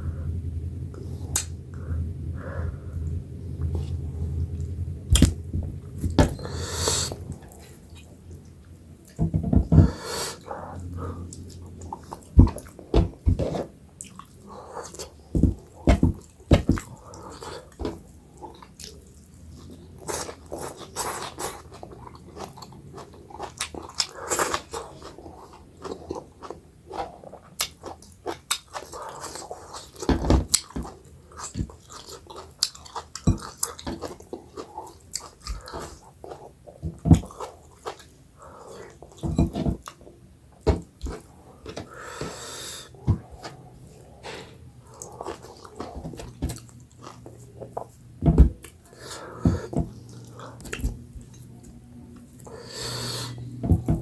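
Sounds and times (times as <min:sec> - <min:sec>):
chewing and mouth sounds: 0:14.0 - 0:39.2, 0:41.0 - 0:53.6.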